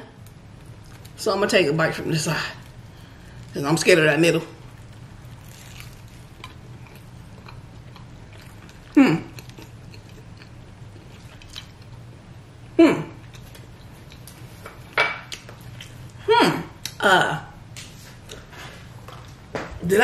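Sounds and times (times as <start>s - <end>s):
low room hum: 0.0s - 20.0s
person chewing with mouth closed: 4.8s - 12.0s, 13.2s - 14.6s.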